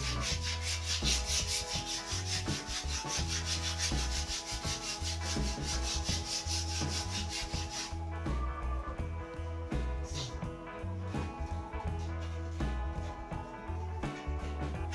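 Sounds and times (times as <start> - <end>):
sandpaper rubbing on wood: 0.0 - 8.0.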